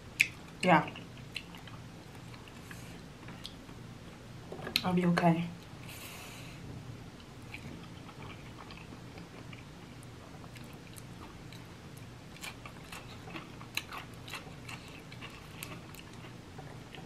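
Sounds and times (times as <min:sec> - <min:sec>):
person chewing food: 0:00.2 - 0:03.7, 0:07.2 - 0:17.0
cucumber crunching: 0:12.4 - 0:16.3.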